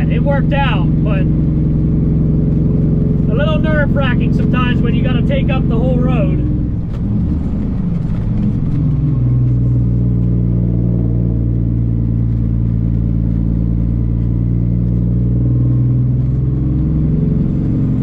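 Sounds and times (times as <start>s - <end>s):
truck diesel engine droning: 0.0s - 18.0s.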